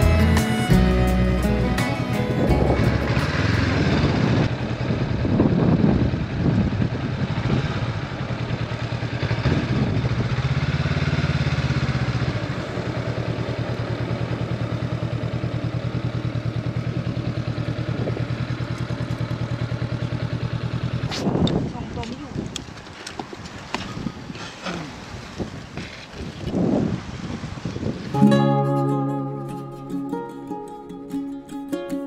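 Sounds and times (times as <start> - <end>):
motorcycle engine idling: 1.2 - 23.0.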